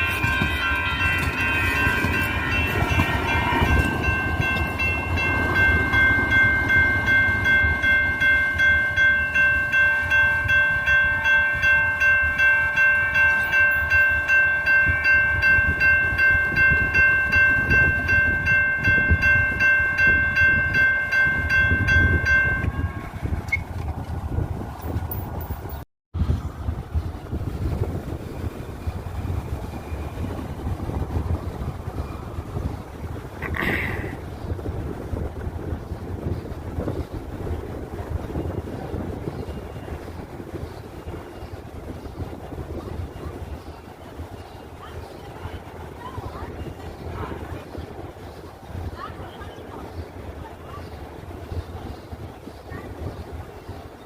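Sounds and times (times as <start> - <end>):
crossing warning bell ringing: 0.0 - 23.8, 34.7 - 48.2
train rumbling: 0.0 - 54.0.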